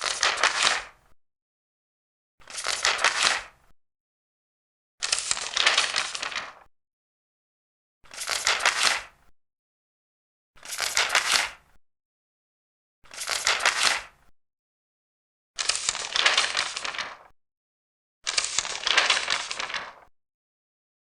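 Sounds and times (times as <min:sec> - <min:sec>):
paper pages turning: 0:00.0 - 0:00.9, 0:02.4 - 0:03.5, 0:05.0 - 0:06.7, 0:08.1 - 0:09.1, 0:10.6 - 0:11.6, 0:13.1 - 0:14.1, 0:15.6 - 0:17.3, 0:18.3 - 0:20.1.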